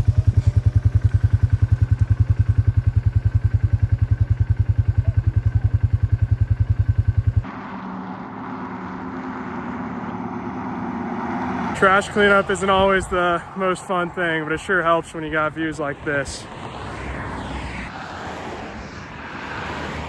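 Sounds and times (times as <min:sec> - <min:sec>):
atv engine idling: 0:00.0 - 0:07.5.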